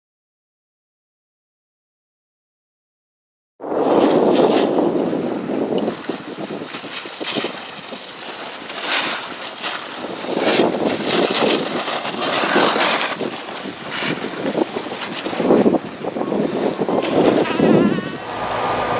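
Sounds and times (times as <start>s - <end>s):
skis scraping over snow: 3.6s - 18.9s
wind on microphone: 3.6s - 18.9s.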